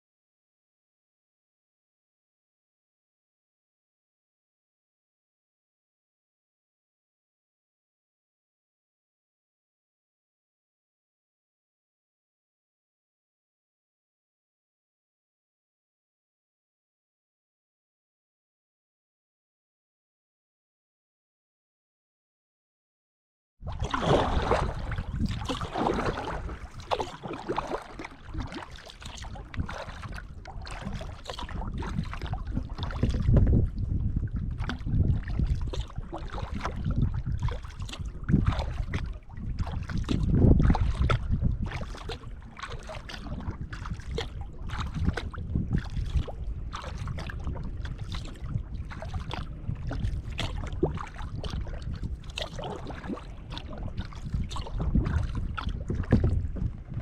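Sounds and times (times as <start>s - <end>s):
wind on microphone: 23.6s - 57.0s
paddle splashing in water: 23.7s - 33.5s, 34.6s - 57.0s.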